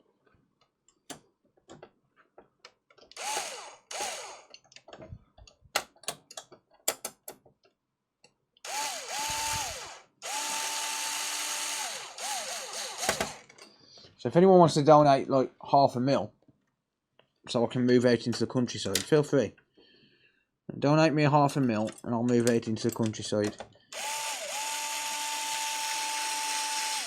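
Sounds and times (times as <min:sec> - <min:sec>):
electric screwdriver motor whine: 0:03.2 - 0:04.5, 0:08.7 - 0:13.4, 0:24.0 - 0:27.0
clicks and taps of screws: 0:04.5 - 0:08.4.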